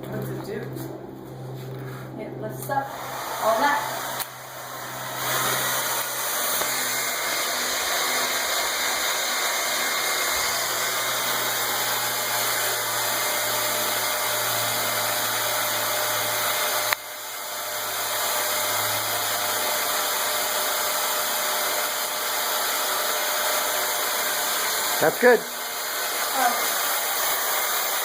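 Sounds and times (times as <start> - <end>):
hair dryer running: 1.6 - 28.0
hair dryer switch click: 4.1 - 4.4, 6.0 - 6.8.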